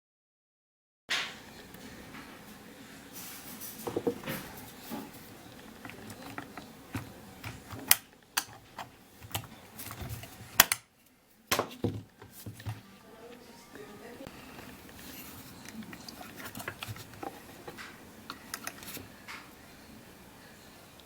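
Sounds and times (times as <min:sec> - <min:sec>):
clicks of plastic and metal parts: 0:05.5 - 0:10.9, 0:15.6 - 0:19.4.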